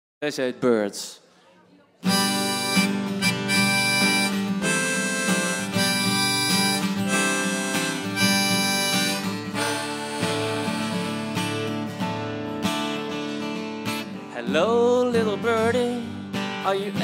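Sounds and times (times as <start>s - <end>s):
harmonica playing held notes: 2.0s - 13.6s
acoustic guitar chords: 2.0s - 17.0s.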